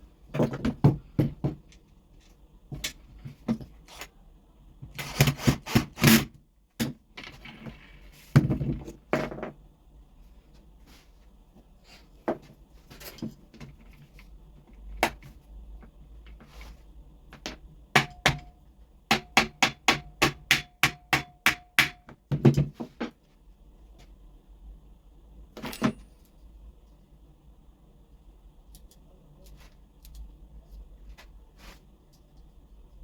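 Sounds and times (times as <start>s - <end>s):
hammer tapping metal: 19.1s - 22.2s.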